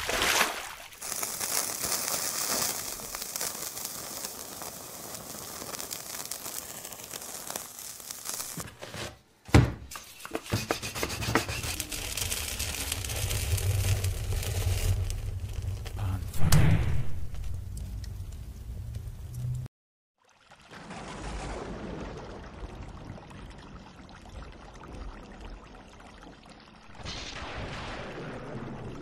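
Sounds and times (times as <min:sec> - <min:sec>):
crackling: 0:00.0 - 0:08.8, 0:09.9 - 0:19.7
thud: 0:09.5 - 0:10.7, 0:16.2 - 0:17.7
hissing rush: 0:11.4 - 0:18.5
low rumble: 0:11.8 - 0:19.7.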